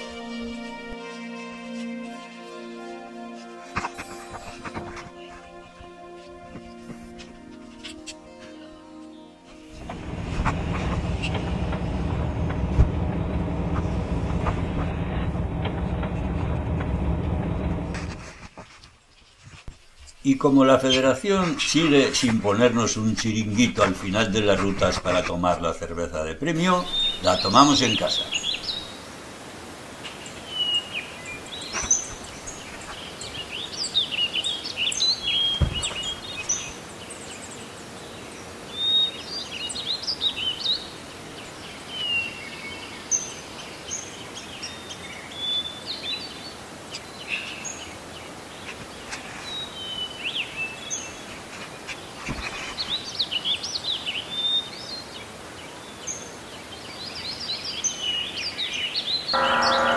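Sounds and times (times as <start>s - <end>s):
soft low thumps: 9.8s - 18.0s, 35.6s - 36.3s
faint steady hiss: 18.3s - 59.9s
songbirds chirping and singing: 20.0s - 29.1s, 30.0s - 59.9s.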